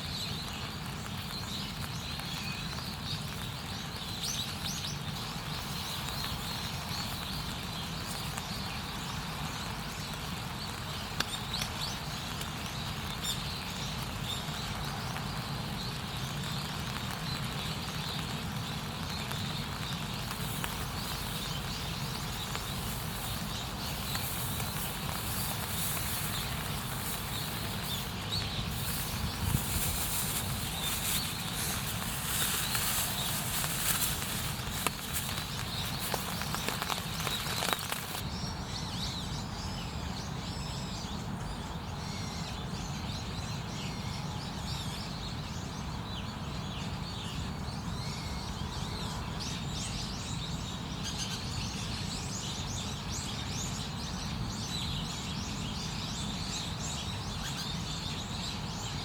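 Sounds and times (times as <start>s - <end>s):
campfire burning with crackles: 0.0s - 38.4s.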